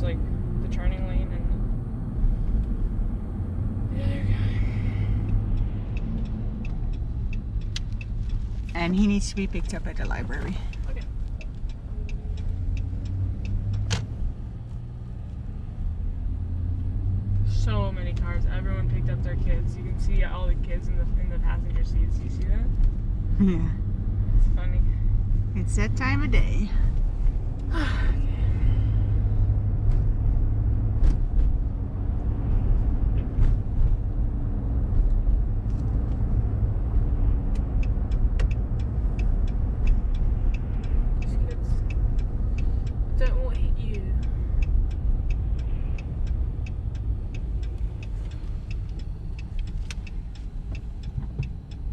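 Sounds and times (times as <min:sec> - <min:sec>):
truck engine and road hum: 0:00.0 - 0:51.9
light ticks: 0:04.9 - 0:15.4, 0:18.0 - 0:18.6, 0:34.9 - 0:51.9.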